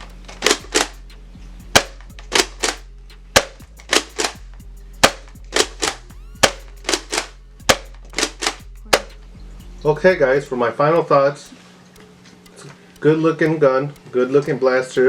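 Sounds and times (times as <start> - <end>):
toy blaster firing: 5.0 - 9.1.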